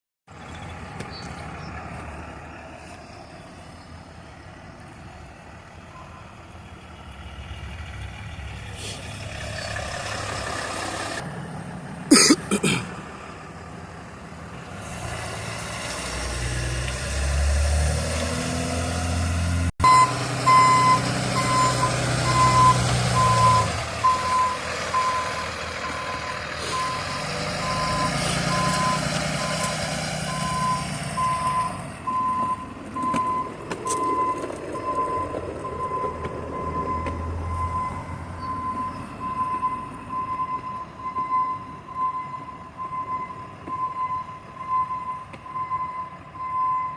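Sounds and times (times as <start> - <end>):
diesel engine rumble: 0.3 - 46.9
backup alarm beeping: 19.8 - 29.7.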